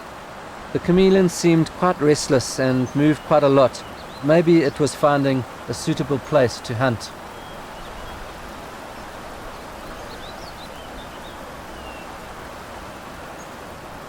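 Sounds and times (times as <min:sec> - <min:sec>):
field ambience hiss: 0:00.0 - 0:14.0
faint high bird chirps: 0:09.6 - 0:12.1.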